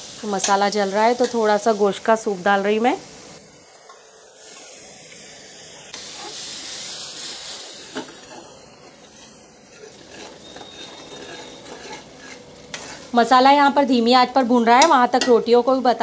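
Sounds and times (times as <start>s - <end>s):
sizzling in a pan: 0.0s - 16.0s
spoon stirring paste: 9.7s - 13.2s.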